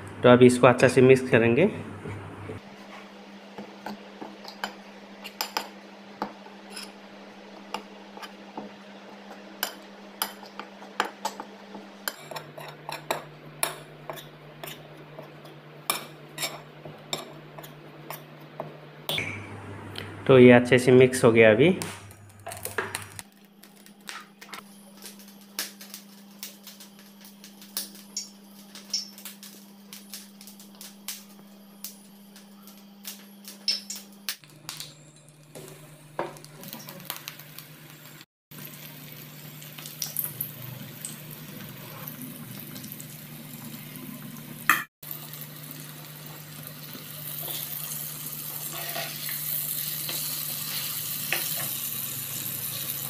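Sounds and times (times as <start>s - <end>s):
batter frying in hot oil: 22.2s - 53.0s.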